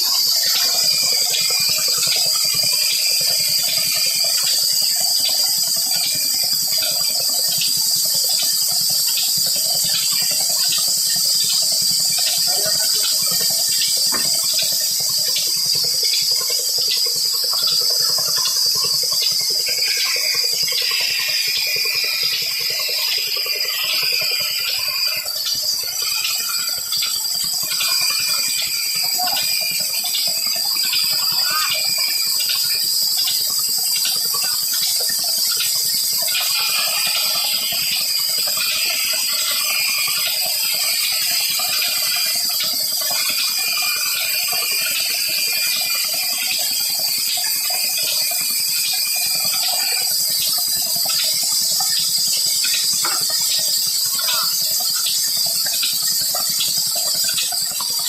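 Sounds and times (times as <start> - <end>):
rapid mechanical ticking: 0.0 - 58.0
thin high whine: 19.7 - 32.8.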